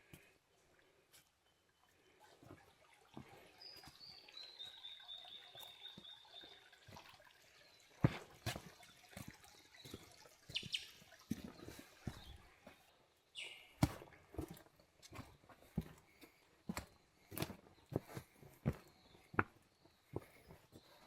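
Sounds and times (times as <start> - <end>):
footsteps on rocky leafy track: 8.0 - 21.0
short bird calls: 13.4 - 13.8.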